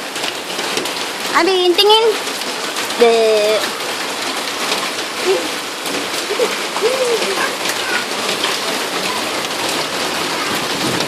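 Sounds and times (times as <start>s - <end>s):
rain falling and splashing: 0.0s - 11.0s
faint voice-like sounds: 5.2s - 5.6s, 6.3s - 9.7s.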